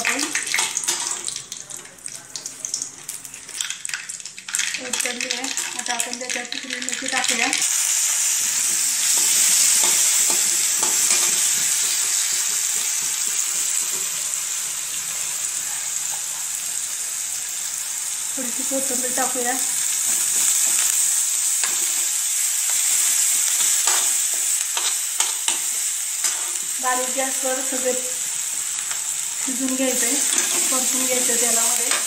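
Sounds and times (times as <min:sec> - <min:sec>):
hot oil crackling: 0:00.0 - 0:32.0
paste sizzling in oil: 0:07.0 - 0:32.0
steel spatula stirring: 0:22.7 - 0:26.7, 0:30.0 - 0:31.2.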